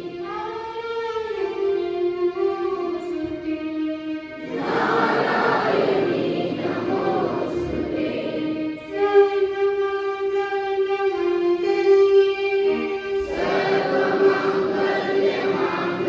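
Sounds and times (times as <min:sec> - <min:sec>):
group of voices singing: 0:04.4 - 0:09.1, 0:13.1 - 0:16.0.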